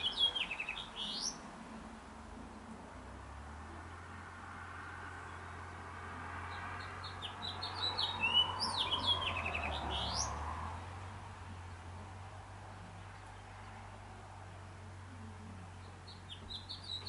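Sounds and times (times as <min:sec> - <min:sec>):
bird chirping and trilling: 0:00.0 - 0:01.4, 0:06.5 - 0:10.4, 0:15.8 - 0:17.0.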